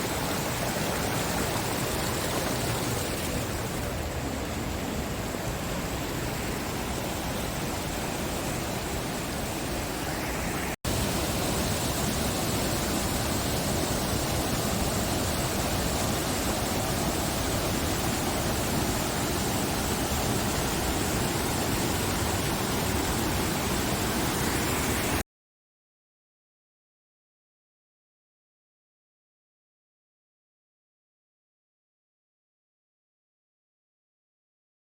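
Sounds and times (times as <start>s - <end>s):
waterfall rushing: 0.0s - 25.2s.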